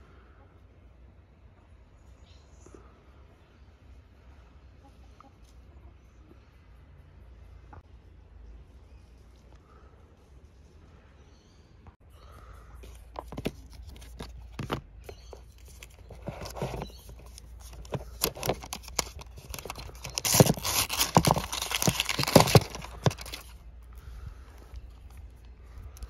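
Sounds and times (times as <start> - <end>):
packaging clicks and knocks: 13.1 - 23.5
paper wrap crackling and tearing: 15.3 - 23.6.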